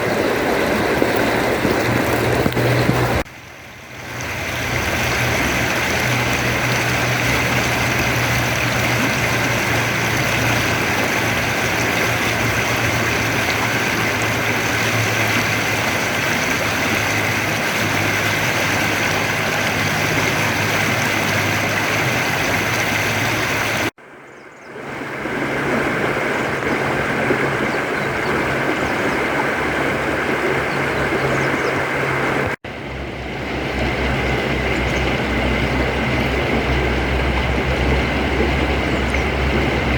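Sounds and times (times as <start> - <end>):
river water rushing: 0.0 - 24.0, 24.8 - 39.9
low hum: 22.4 - 39.9.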